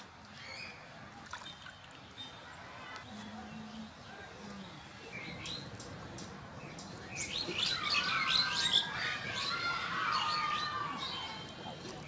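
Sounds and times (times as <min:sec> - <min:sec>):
birds chirping: 0:00.2 - 0:12.0.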